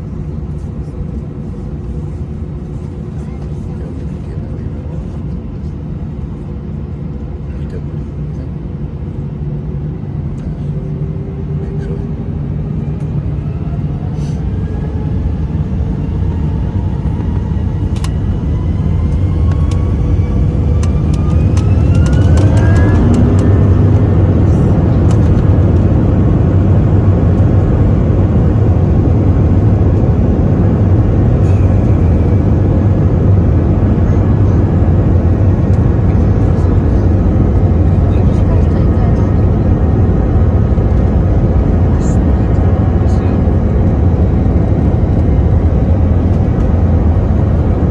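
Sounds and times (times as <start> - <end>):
jet engine roar: 0.0 - 47.9
jet engines spooling up: 10.5 - 47.9.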